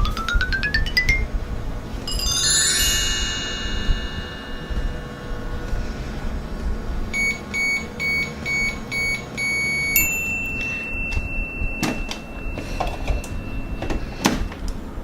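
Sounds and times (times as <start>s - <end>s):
toy microwave beeping: 7.2s - 14.2s.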